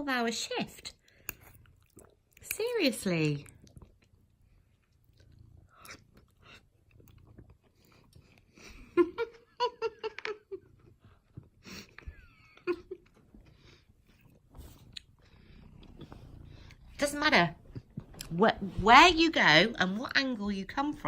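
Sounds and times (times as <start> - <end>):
person chewing food: 0.9 - 2.6, 3.2 - 8.9, 10.6 - 17.0, 17.6 - 18.4.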